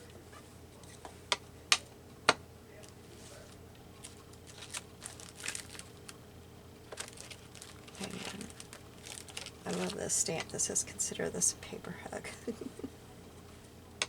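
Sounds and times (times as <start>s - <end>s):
paper rustling and crinkling: 2.8s - 6.2s, 6.8s - 10.6s.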